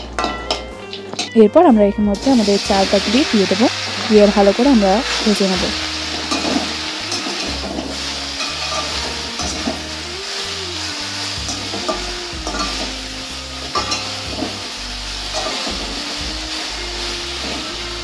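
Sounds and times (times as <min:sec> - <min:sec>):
fruit slices sizzling in oil: 0:00.0 - 0:18.0
metal spatula scraping a pan: 0:05.0 - 0:13.0, 0:13.6 - 0:17.9.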